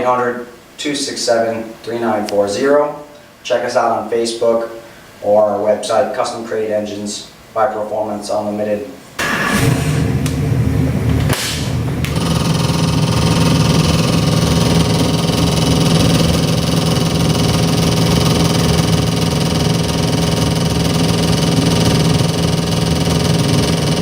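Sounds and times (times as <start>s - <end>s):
brief rushing noise: 9.2s - 10.4s
car engine idling: 9.2s - 24.0s.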